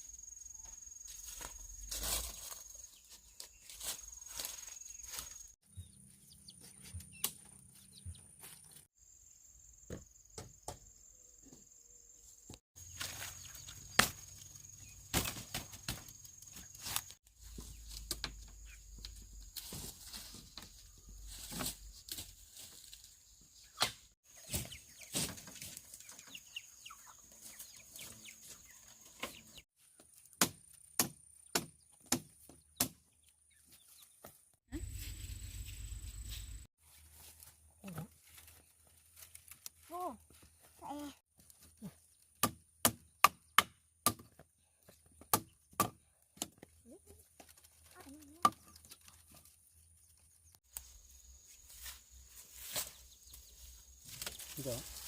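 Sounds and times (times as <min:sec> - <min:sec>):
blade chopping bamboo: 0:30.3 - 0:33.0, 0:42.4 - 0:44.3.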